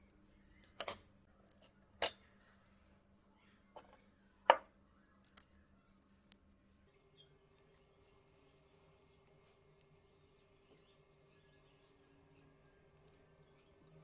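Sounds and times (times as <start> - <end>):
hand tools clicking and snipping: 0.6 - 2.2.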